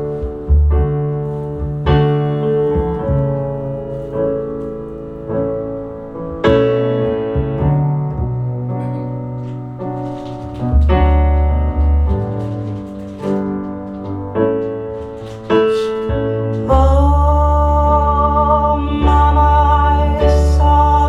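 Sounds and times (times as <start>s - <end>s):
deep bass note: 0.0s - 13.0s, 16.2s - 21.0s
piano chords: 0.0s - 21.0s.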